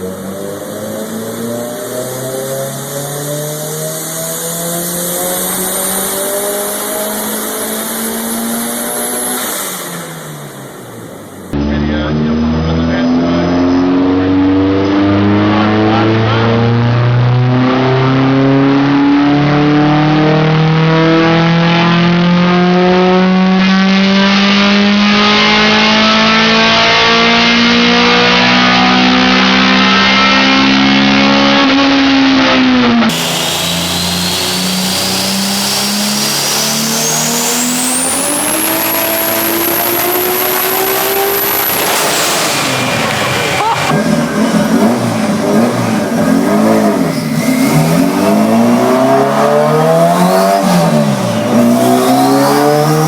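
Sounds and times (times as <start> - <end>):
car engine revving under load: 0.0 - 53.0
high whine: 27.6 - 53.0.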